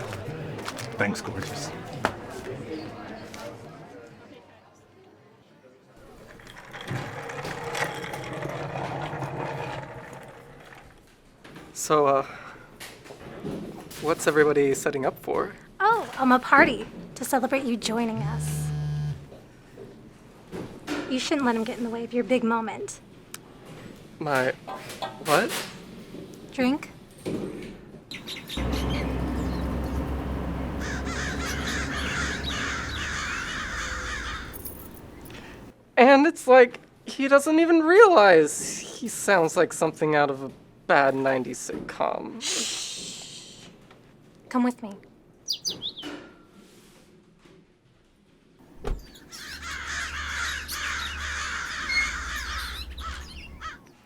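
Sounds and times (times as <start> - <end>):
crows cawing: 28.6 - 35.6, 49.2 - 54.0.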